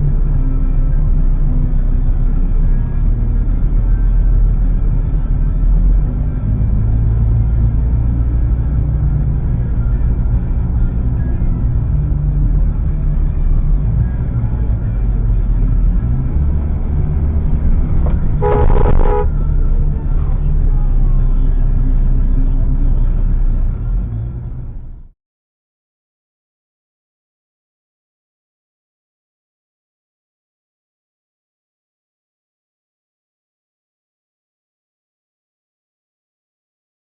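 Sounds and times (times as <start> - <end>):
vehicle driving rumble: 0.0 - 25.1
horn blast: 17.9 - 19.8.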